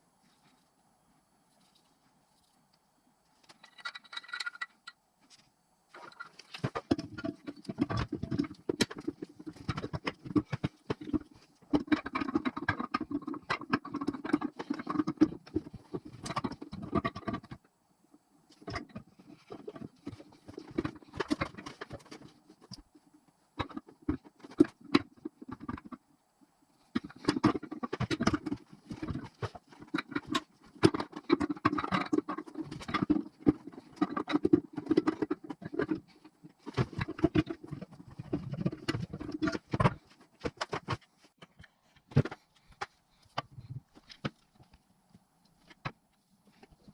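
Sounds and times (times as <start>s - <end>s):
metal engine parts handled: 3.4s - 4.9s.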